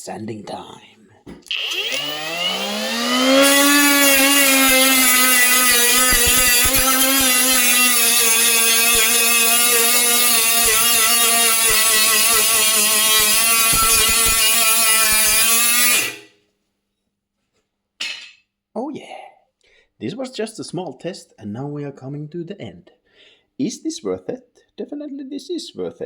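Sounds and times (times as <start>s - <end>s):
angle grinder high whine: 1.5s - 16.3s.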